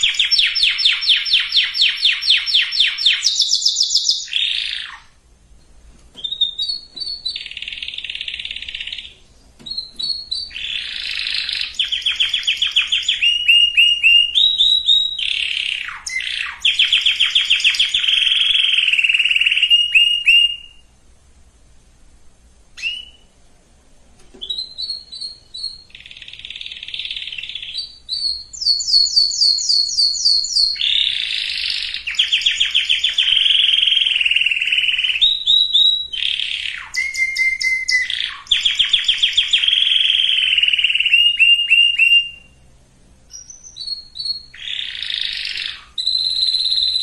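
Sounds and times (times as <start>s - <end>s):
canary singing: 0.0s - 21.0s, 22.8s - 23.4s, 24.4s - 42.7s, 43.3s - 47.0s.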